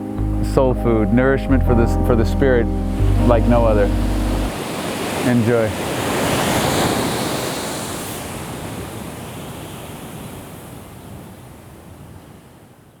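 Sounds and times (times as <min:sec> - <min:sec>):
ocean surf washing on beach: 0:02.8 - 0:13.0.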